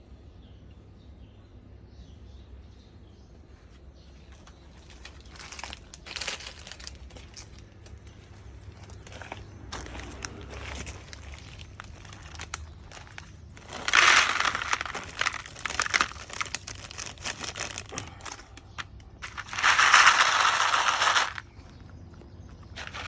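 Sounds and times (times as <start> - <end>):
rustling and crinkling: 3.4 - 23.0.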